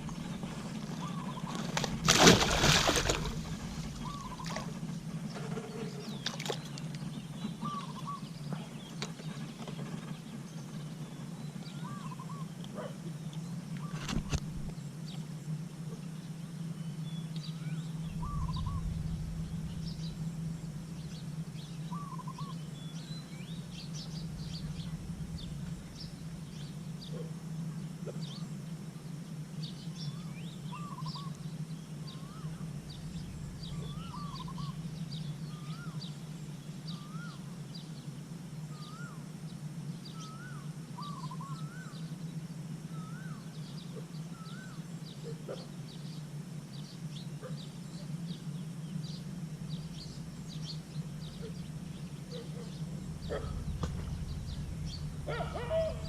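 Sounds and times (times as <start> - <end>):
low rumble: 0.0 - 8.8, 17.4 - 29.0, 30.1 - 36.8, 48.8 - 56.0
steady low hum: 0.0 - 56.0
bird repeating a call: 55.2 - 56.0.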